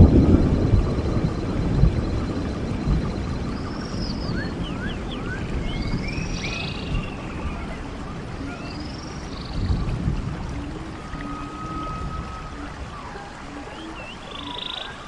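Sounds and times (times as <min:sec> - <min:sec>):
stream water running: 0:00.0 - 0:15.0
birds whistling calls: 0:03.4 - 0:09.8, 0:10.6 - 0:15.0.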